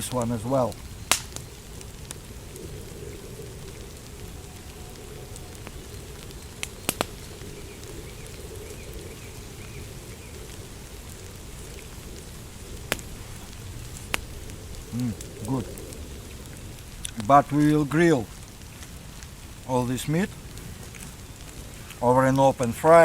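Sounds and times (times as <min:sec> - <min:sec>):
steady rain: 0:00.0 - 0:23.0
sharp clicks: 0:01.1 - 0:02.2, 0:05.6 - 0:07.3, 0:12.8 - 0:13.1.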